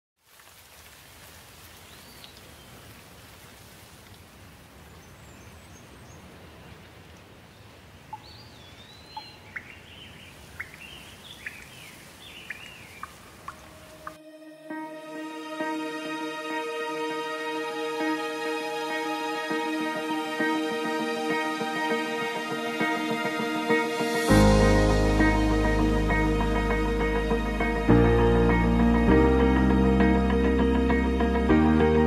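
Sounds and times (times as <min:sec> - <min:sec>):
background hiss: 0:00.2 - 0:14.2
birds chirping: 0:04.8 - 0:14.2
music: 0:14.0 - 0:32.0.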